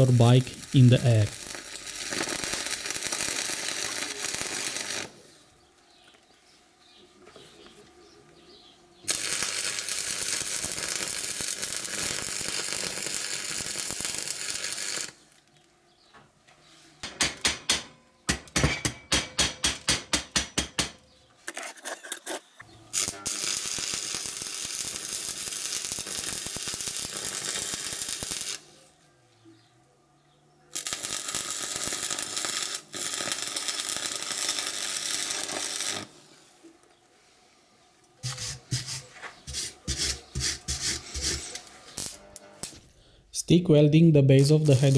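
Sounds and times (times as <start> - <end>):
welding arc crackling and hissing: 0.0 - 5.2, 9.1 - 15.4, 22.9 - 28.9, 30.7 - 36.6, 38.2 - 43.0, 44.3 - 44.9.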